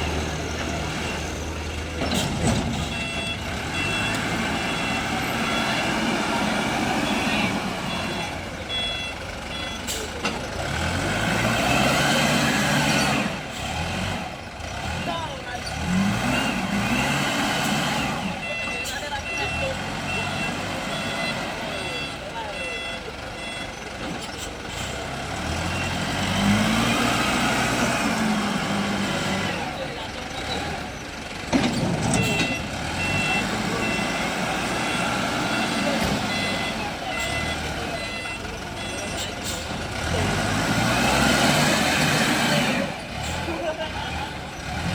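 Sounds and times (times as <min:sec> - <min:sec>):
diesel engine running hard: 0:00.0 - 0:44.9
reversing alarm beeps: 0:02.8 - 0:10.0, 0:18.4 - 0:23.9, 0:32.1 - 0:39.6.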